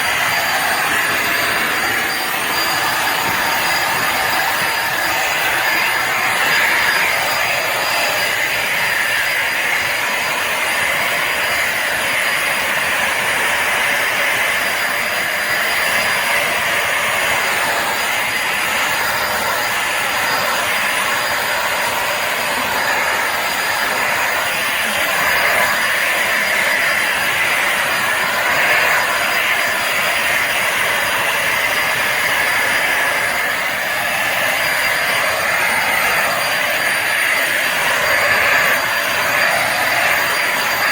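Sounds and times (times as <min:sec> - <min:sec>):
vacuum motor whine and suction: 0:00.0 - 0:40.9.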